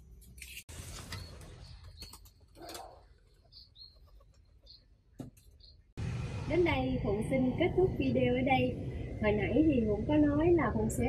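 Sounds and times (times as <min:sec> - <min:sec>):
birds calling: 0:01.0 - 0:05.9.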